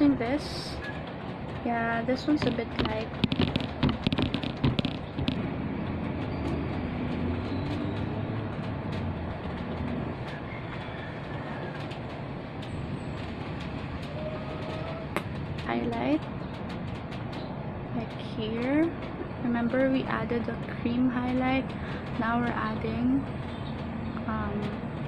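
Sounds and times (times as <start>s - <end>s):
steady rain falling: 0.3s - 20.3s
small clicks: 2.4s - 5.4s.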